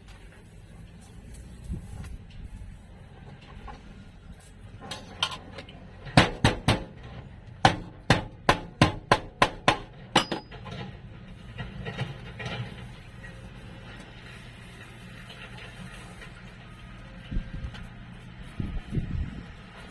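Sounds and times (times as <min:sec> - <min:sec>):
hammer striking sheet metal: 0:06.2 - 0:07.0, 0:07.6 - 0:10.6.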